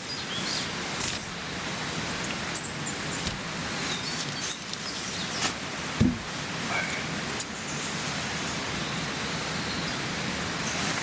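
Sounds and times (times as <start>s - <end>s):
low thump: 6.0s - 6.3s.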